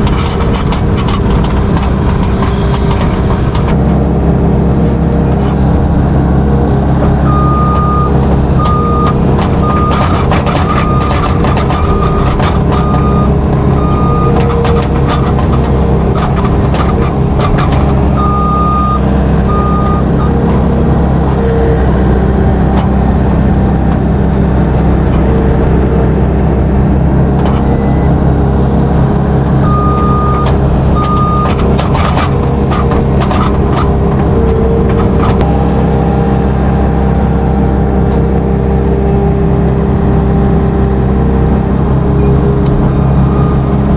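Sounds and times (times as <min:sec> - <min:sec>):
knocks and clanks: 0:00.0 - 0:03.8, 0:08.6 - 0:18.4, 0:30.0 - 0:35.5
heavy engine running: 0:00.0 - 0:43.9
reversing alarm beeping: 0:07.2 - 0:14.8, 0:18.2 - 0:20.4, 0:29.6 - 0:31.6, 0:43.1 - 0:43.8.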